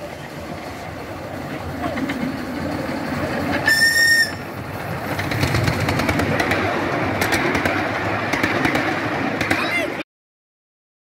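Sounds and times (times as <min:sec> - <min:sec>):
train wheels clicking on rails: 0:00.0 - 0:10.0
train whistle: 0:03.6 - 0:04.5.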